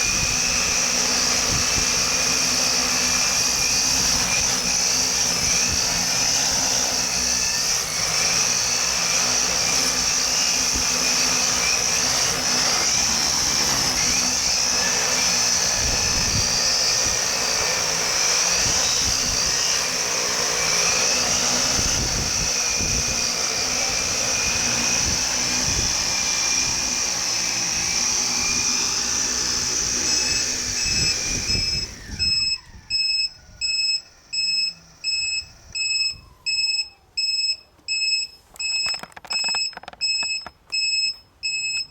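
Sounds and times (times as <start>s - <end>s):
wind gusting on microphone: 0.0s - 33.7s
drone motors whining: 0.0s - 41.9s
short electronic beeps: 32.3s - 41.9s.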